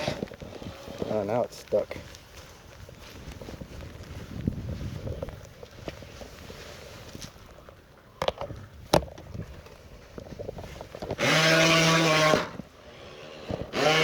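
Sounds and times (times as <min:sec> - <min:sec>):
electric motor buzzing: 0:00.0 - 0:01.0, 0:11.2 - 0:14.0.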